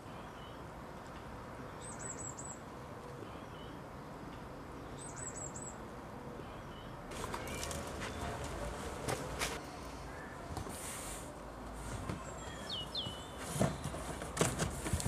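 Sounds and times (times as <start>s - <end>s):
outdoor background hiss: 0.0s - 15.0s
clicks and rustles: 7.1s - 9.6s, 13.4s - 15.0s
small bird chirping: 12.3s - 13.4s.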